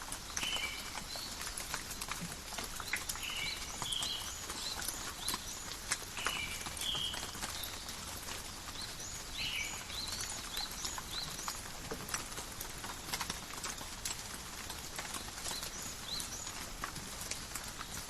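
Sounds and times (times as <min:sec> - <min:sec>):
rain falling: 0:00.0 - 0:18.0
raindrops tapping: 0:00.0 - 0:18.0
bird chirping: 0:02.8 - 0:07.9, 0:08.7 - 0:11.6.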